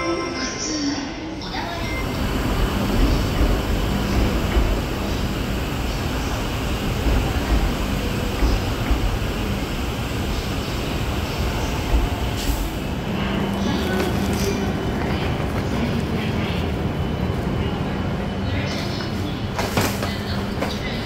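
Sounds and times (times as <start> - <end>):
standing electric train humming: 0.2 - 21.0.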